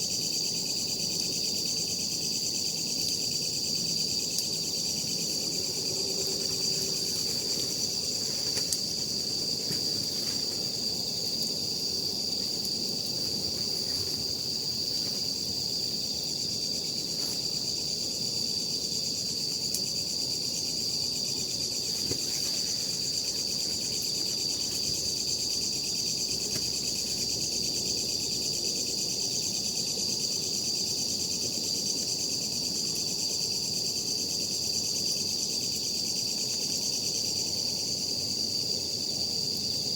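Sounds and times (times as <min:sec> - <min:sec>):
night insects trilling: 0:00.0 - 0:39.9
campfire crackling: 0:02.1 - 0:27.4.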